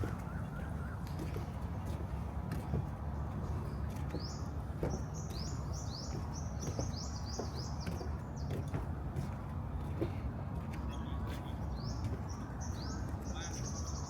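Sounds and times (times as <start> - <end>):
bird chirping: 10.8 - 14.0.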